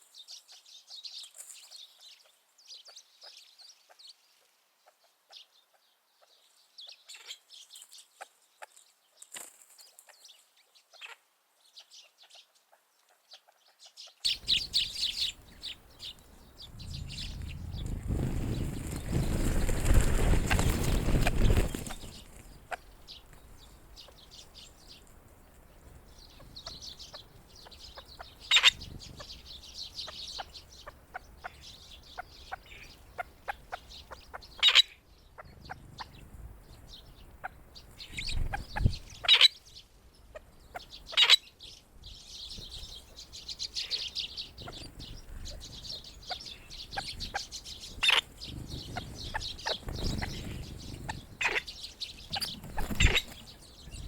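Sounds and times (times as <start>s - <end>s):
birds chirping and clucking: 11.8s - 54.0s.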